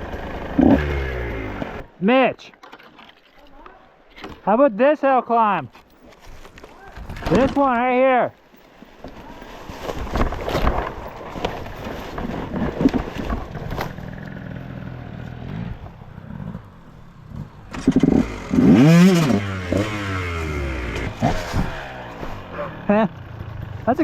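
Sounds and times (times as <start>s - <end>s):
dirt bike engine revving: 0.0s - 1.9s, 12.4s - 24.0s
clattering and scraping: 9.0s - 14.7s, 17.3s - 22.6s.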